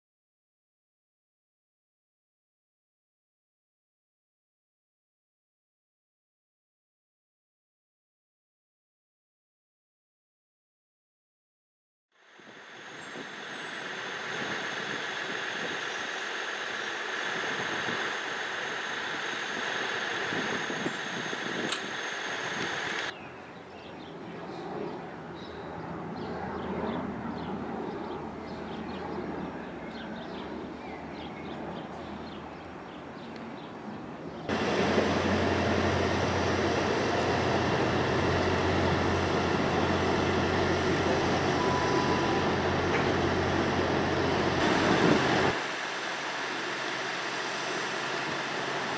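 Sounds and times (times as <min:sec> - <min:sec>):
train noise: 0:12.2 - 0:23.1, 0:24.0 - 0:48.9
low engine hum: 0:12.3 - 0:23.1, 0:24.1 - 0:48.9.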